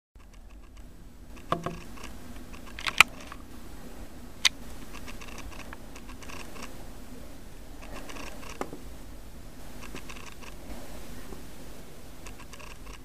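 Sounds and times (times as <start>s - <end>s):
sharp clicks: 0.2s - 3.4s, 4.4s - 6.8s, 7.8s - 8.7s, 9.8s - 10.6s, 12.2s - 13.0s.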